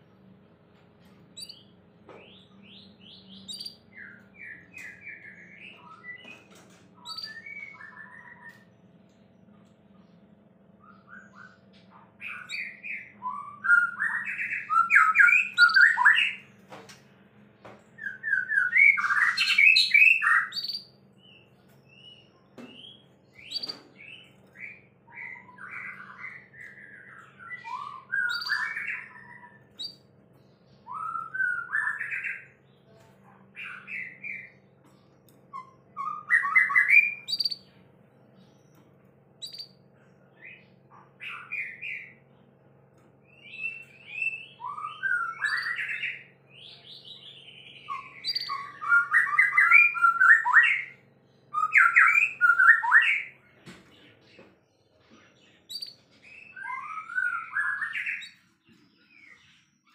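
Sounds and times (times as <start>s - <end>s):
bird whistling and chattering: 1.4s - 1.6s, 2.7s - 6.3s, 7.0s - 8.7s, 10.8s - 16.4s, 18.0s - 20.9s, 23.4s - 30.0s, 35.5s - 37.7s, 39.4s - 39.8s, 43.3s - 53.4s, 55.7s - 58.4s.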